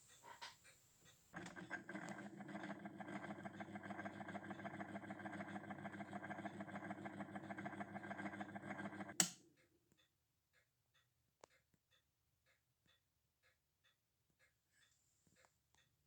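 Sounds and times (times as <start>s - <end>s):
electric machine pulsing hum: 1.4s - 9.2s.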